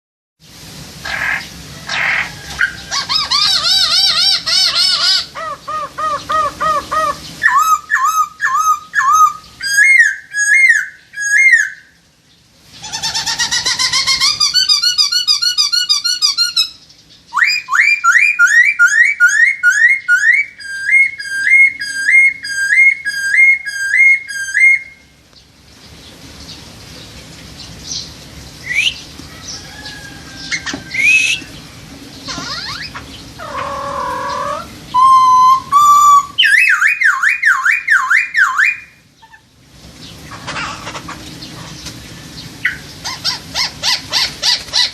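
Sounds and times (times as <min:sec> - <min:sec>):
bird singing whistled notes: 0:07.4 - 0:12.0, 0:14.4 - 0:25.1, 0:27.9 - 0:29.1, 0:30.4 - 0:31.6, 0:33.6 - 0:39.0.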